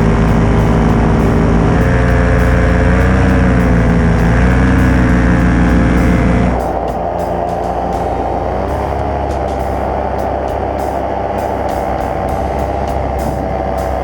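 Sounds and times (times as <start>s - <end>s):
paramotor engine and propeller: 0.0s - 6.6s.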